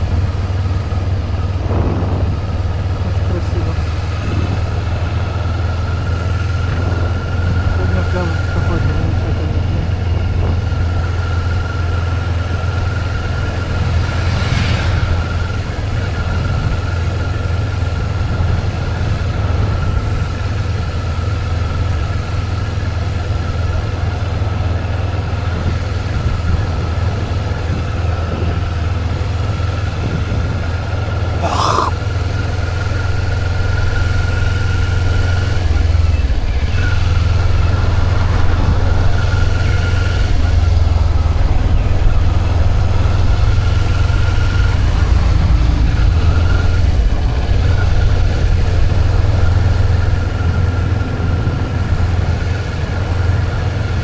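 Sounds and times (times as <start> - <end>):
motorcycle engine running: 0.0 - 31.4
road and wind noise: 0.0 - 54.0.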